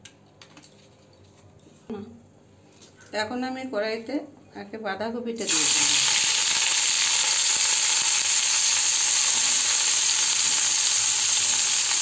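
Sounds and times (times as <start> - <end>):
cabbage sizzling in hot oil: 5.4 - 12.0.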